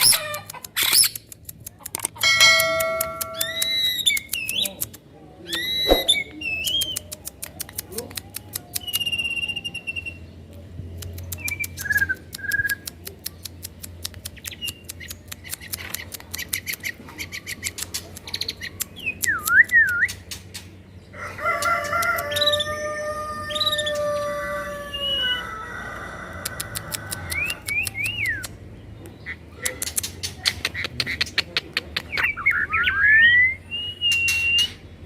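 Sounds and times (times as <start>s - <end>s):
songbirds chirping and whistling: 0.0s - 35.0s
long multi-tone bird call: 2.6s - 4.7s, 21.0s - 28.5s.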